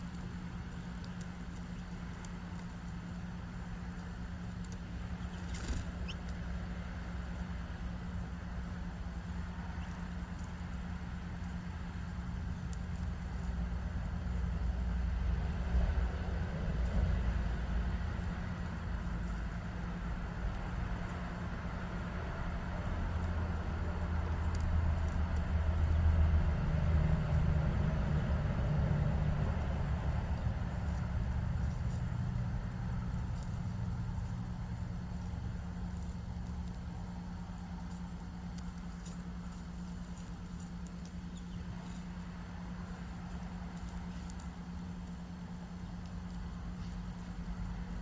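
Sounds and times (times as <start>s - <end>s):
steady low hum: 0.0s - 48.0s
passing vehicle engine rumble: 13.2s - 39.8s.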